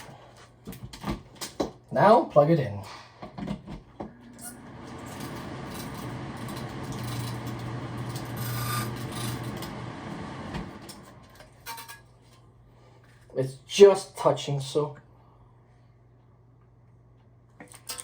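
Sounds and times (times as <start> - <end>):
exhaust fan motor humming: 4.1 - 11.8
fan wheel rasping scrape: 4.4 - 9.8.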